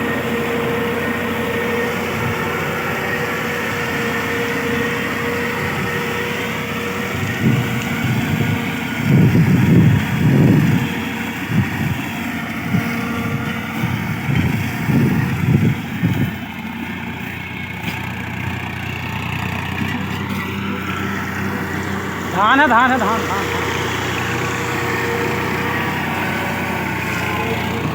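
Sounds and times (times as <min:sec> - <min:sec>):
tractor engine running: 0:00.0 - 0:27.9.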